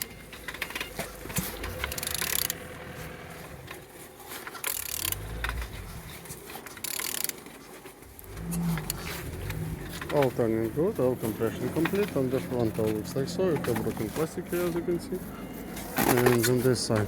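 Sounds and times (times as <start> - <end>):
metallic clicks and ratchet ticking: 0.0 - 2.8, 4.6 - 5.7, 6.8 - 7.5
low rumble: 8.1 - 16.0.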